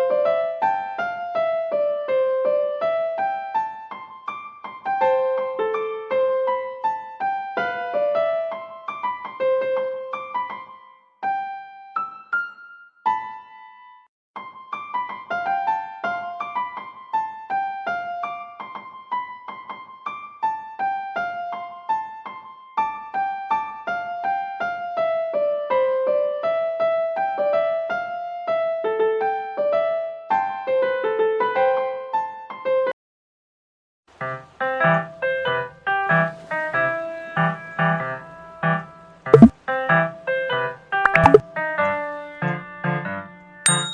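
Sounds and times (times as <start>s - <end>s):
light electric piano tune: 0.0s - 13.9s.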